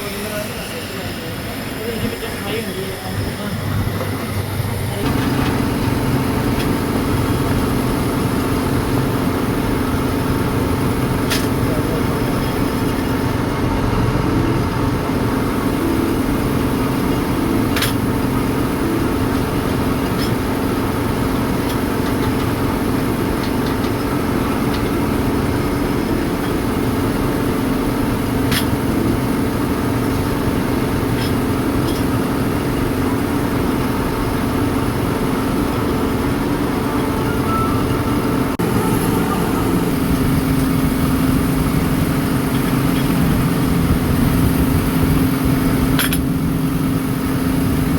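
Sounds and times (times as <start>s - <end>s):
workshop machinery humming: 0.0s - 47.9s.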